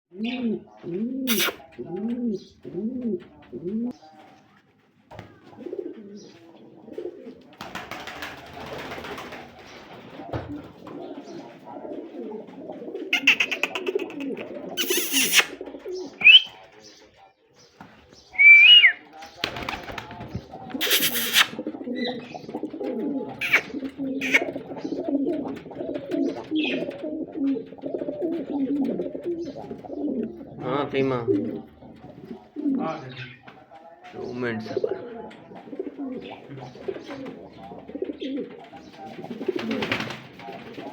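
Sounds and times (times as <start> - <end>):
pigeons cooing: 0.1 - 4.0, 5.2 - 17.3, 18.1 - 40.9
short bursts of noise: 14.8 - 15.5, 20.8 - 21.6.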